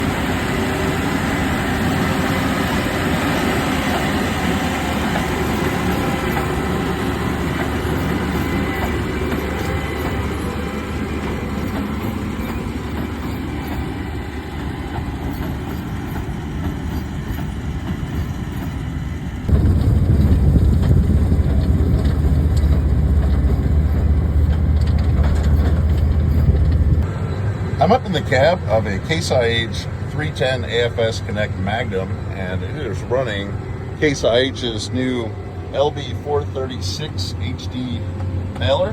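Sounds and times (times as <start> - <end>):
tractor drone inside cab: 0.0 - 16.6, 17.3 - 38.9
baler machinery rattling: 0.0 - 27.0.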